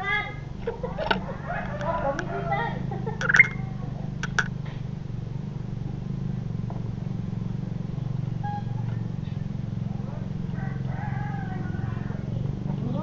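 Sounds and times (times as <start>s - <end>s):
motor engine humming: 0.0s - 13.0s
sharp clicks: 3.2s - 3.6s, 4.2s - 4.5s
short high chirp: 3.2s - 3.6s.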